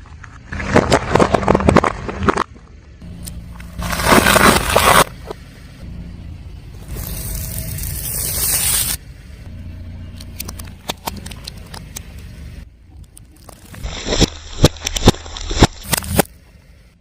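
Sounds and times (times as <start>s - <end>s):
low rumble: 0.0s - 17.0s
tyre crushing objects: 0.4s - 2.6s, 3.7s - 5.2s, 13.5s - 16.3s.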